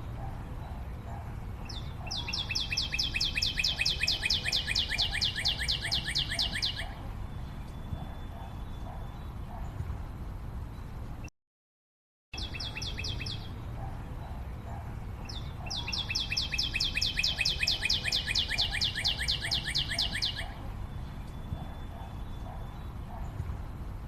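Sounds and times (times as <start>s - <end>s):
bird trilling: 1.7s - 7.0s, 15.3s - 20.6s.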